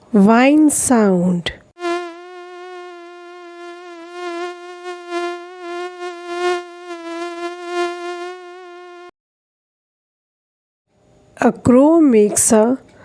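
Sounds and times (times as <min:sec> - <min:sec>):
mosquito whining in flight: 0:01.8 - 0:09.1.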